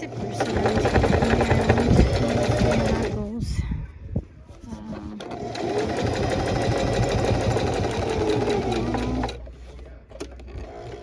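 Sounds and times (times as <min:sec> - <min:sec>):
electric sewing machine running: 0:00.0 - 0:03.2, 0:05.3 - 0:09.4.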